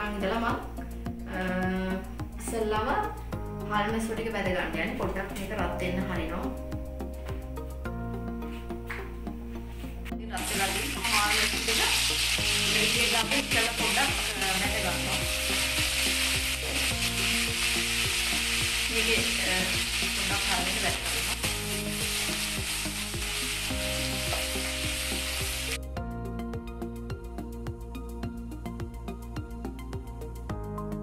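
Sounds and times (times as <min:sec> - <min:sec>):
fish sizzling in hot oil: 0:10.4 - 0:25.8.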